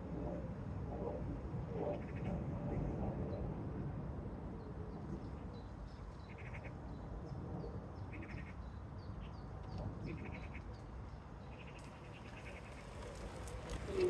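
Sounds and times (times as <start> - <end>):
birds chirping: 11.4 - 14.0.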